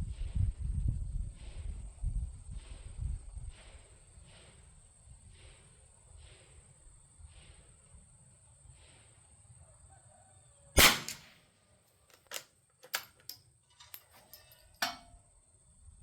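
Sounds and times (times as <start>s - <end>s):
rifle bolt clicking: 10.8s - 11.3s, 12.1s - 15.0s
rifle shot: 10.8s - 11.4s.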